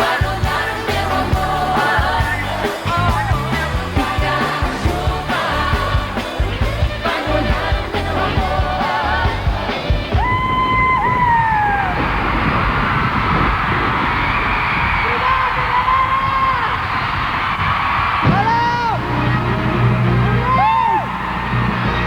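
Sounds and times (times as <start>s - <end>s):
male and female singing: 0.0s - 10.1s
band with drums and bass: 0.0s - 12.1s, 18.1s - 22.0s.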